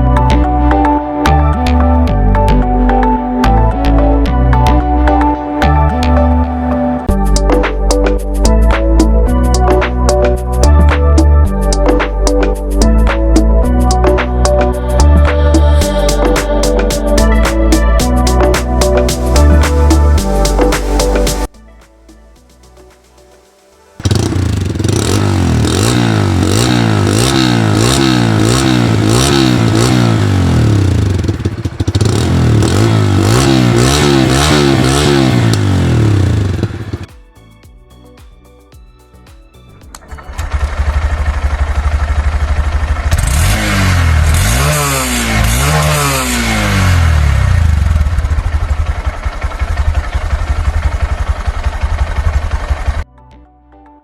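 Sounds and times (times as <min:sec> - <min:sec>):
motorcycle engine revving: 0:24.0 - 0:37.1, 0:39.9 - 0:53.0.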